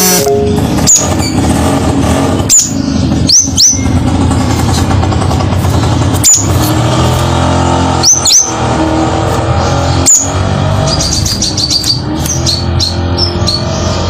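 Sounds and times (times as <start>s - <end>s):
bird chirping: 2.5s - 4.4s, 8.0s - 8.7s, 9.6s - 14.0s.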